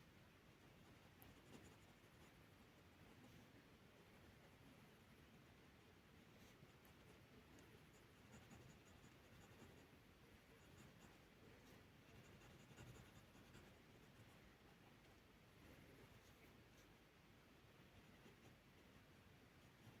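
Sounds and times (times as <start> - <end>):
drawing tool scratching paper: 8.2 - 9.8, 12.1 - 13.8.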